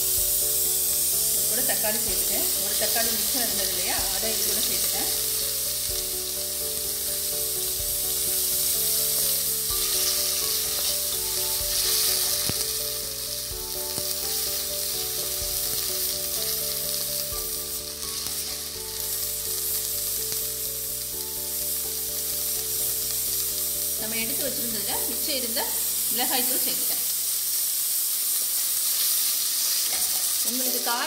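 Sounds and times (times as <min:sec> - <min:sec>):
vegetables sizzling in hot oil: 0:00.0 - 0:31.0.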